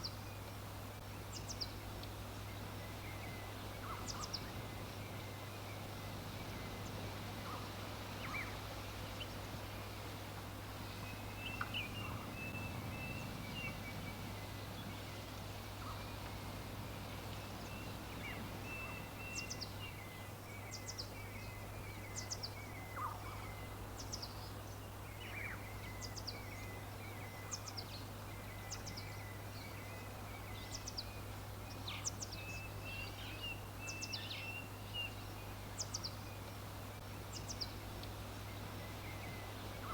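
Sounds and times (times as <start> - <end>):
soft background hiss: 0.0 - 39.9
bird warbling song: 1.2 - 8.6, 10.8 - 39.9
birds chirping: 10.6 - 39.9.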